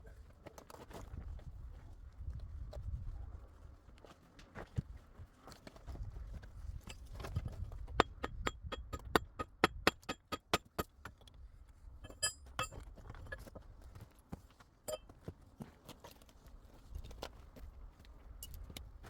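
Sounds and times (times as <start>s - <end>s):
clinks: 12.0s - 13.4s, 14.9s - 15.1s.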